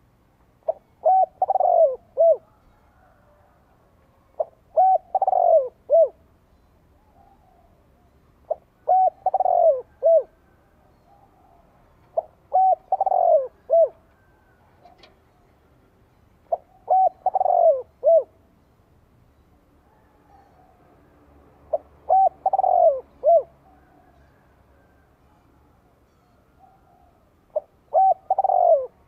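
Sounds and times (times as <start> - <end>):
dove cooing: 0.6 - 3.6, 4.3 - 6.3, 7.1 - 15.1, 16.5 - 18.4, 21.7 - 25.0, 26.6 - 29.0.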